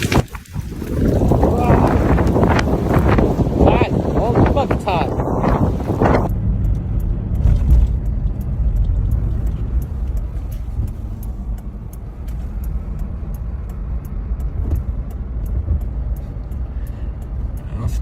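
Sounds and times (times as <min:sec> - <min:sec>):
low road rumble: 0:00.0 - 0:18.0
faint sharp ticks: 0:05.4 - 0:18.0.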